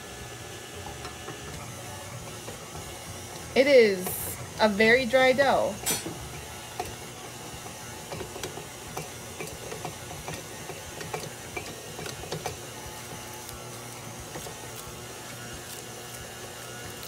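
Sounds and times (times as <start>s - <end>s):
stand mixer motor humming: 0.0s - 17.0s.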